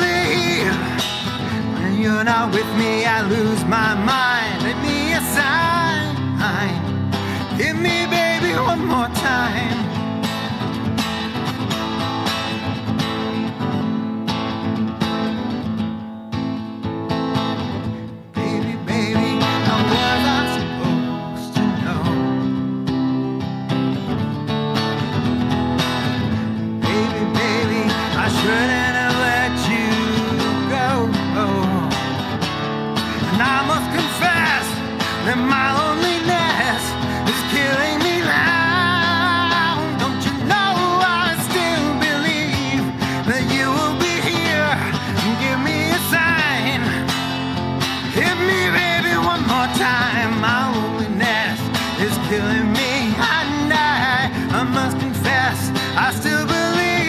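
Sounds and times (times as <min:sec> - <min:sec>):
person singing: 0:00.0 - 0:10.3, 0:18.0 - 0:22.8, 0:26.0 - 0:32.2, 0:33.2 - 0:47.4, 0:48.0 - 0:57.0
acoustic guitar strumming: 0:00.0 - 0:57.0.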